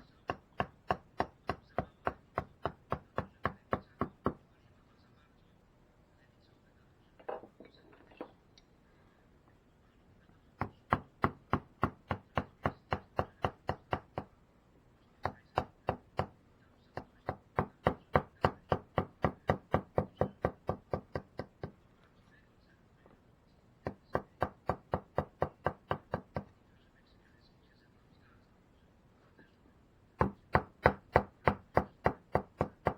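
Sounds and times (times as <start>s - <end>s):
mallet striking chisel into wood: 0.3s - 4.4s, 10.6s - 14.3s, 15.2s - 16.3s, 17.2s - 21.7s, 23.9s - 26.5s, 30.2s - 32.9s.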